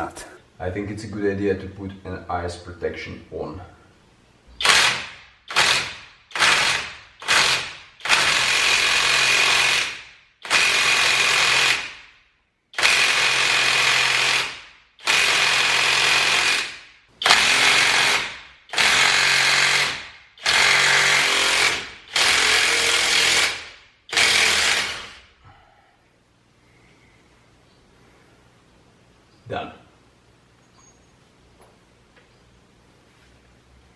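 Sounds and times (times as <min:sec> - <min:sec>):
impact wrench bursts: 0:04.6 - 0:12.1, 0:12.7 - 0:25.4.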